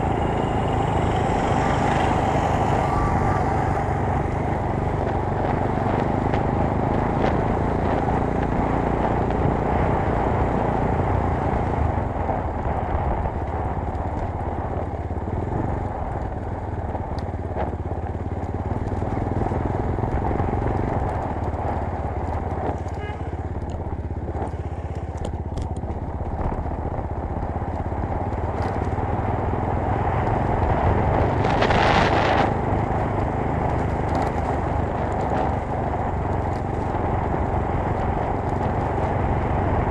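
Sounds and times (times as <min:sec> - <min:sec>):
rush of noise: 0:00.0 - 0:07.8, 0:30.3 - 0:39.9
motorcycle running under load: 0:00.0 - 0:39.9.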